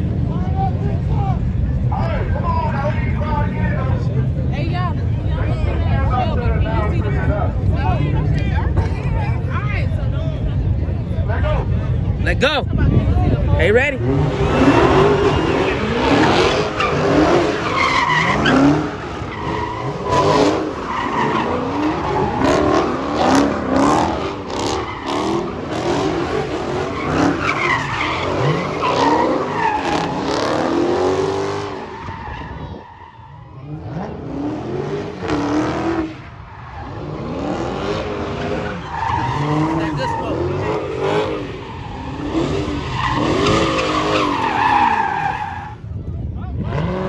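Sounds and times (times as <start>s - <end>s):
car engine revving hard: 12.9s - 32.8s, 33.4s - 45.5s, 46.5s - 47.0s
tyres squealing and skidding: 13.2s - 46.0s.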